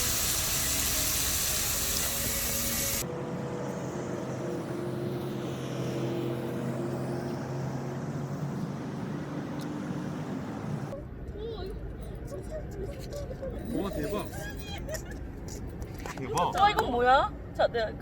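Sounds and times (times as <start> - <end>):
loud hissing: 0.0 - 3.0
engine drone: 0.0 - 11.2.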